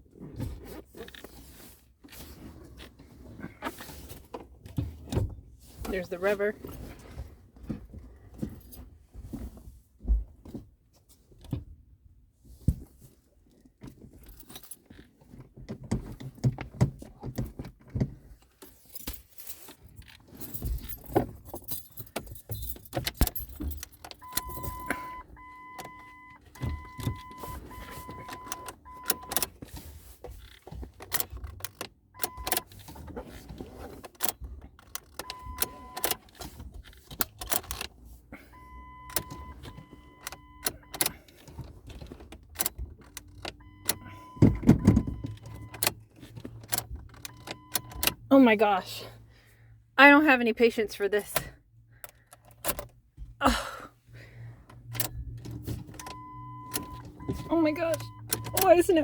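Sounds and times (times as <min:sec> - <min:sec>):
car keys jangling: 0:00.6 - 0:07.8, 0:13.5 - 0:48.4, 0:51.3 - 0:53.2, 0:54.5 - 0:59.0
car warning chime beeping: 0:23.3 - 0:29.6, 0:31.1 - 0:32.8, 0:34.2 - 0:36.3, 0:38.5 - 0:41.6, 0:42.4 - 0:49.1, 0:54.7 - 0:59.0.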